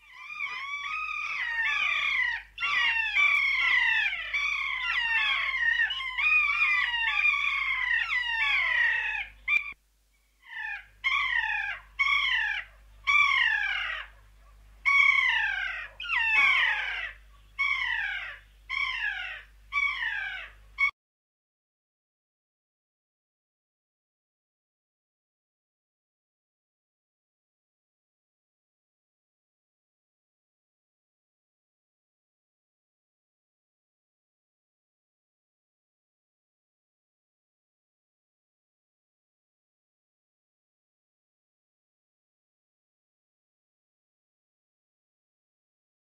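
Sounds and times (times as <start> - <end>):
falling animal calls: 0.0 - 9.8, 10.4 - 14.2, 14.8 - 20.9.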